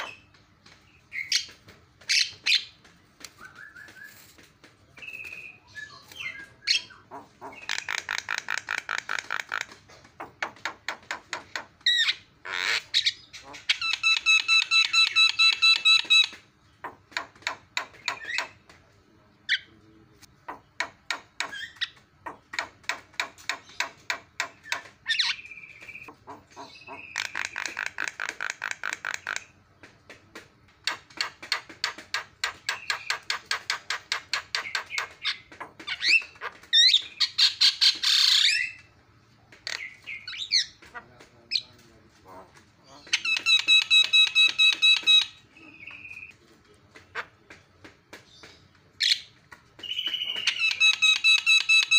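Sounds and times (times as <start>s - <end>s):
bird clicking chatter: 5.0s - 18.6s, 20.4s - 30.0s, 30.7s - 38.8s, 43.0s - 46.4s, 47.0s - 51.9s.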